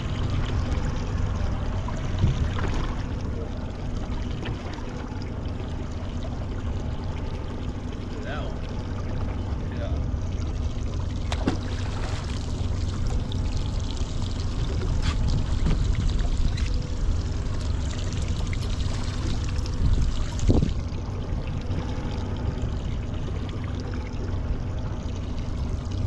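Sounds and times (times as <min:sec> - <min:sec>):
steady low rumble: 0:00.0 - 0:26.0
water splashing against boat hull: 0:00.0 - 0:26.0.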